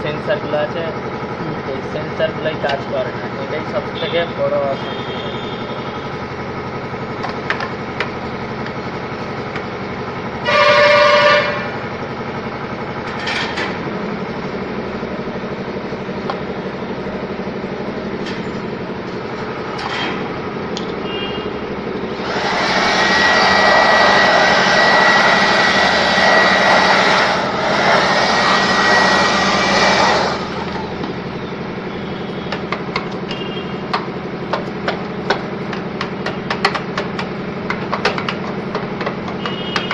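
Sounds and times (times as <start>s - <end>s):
vehicle horn honk: 4.0s - 6.1s, 10.4s - 11.8s, 21.0s - 21.6s, 31.8s - 33.9s, 39.4s - 39.9s
rushing noise with high whistle: 21.1s - 30.5s.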